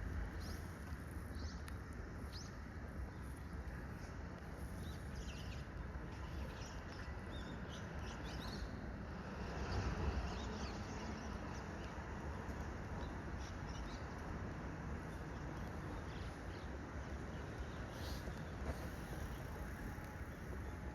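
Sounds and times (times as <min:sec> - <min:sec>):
small birds chirping: 0:15.1 - 0:19.7.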